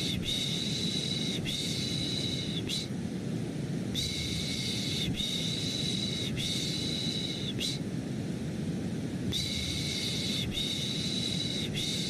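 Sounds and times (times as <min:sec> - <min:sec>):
low white noise: 0:00.0 - 0:12.0.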